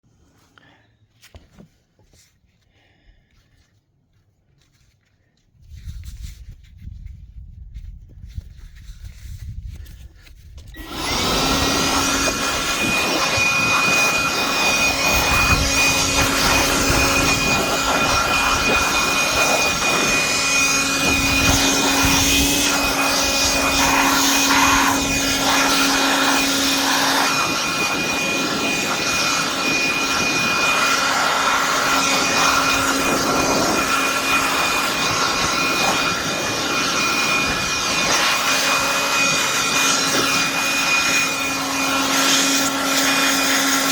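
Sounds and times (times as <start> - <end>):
chainsaw running with steady whine: 10.8 - 43.9.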